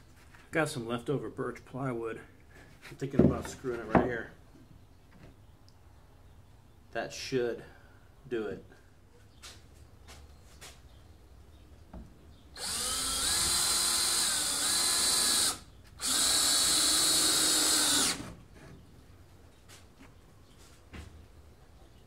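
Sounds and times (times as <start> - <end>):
power drill driving screws: 12.6 - 18.4.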